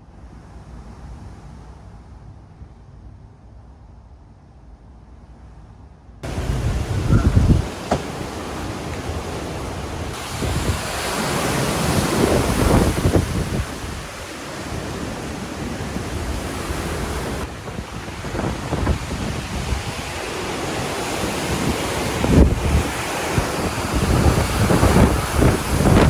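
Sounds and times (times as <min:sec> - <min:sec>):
strong wind gusting: 0:06.2 - 0:26.0
wind buffeting microphone: 0:06.2 - 0:26.0.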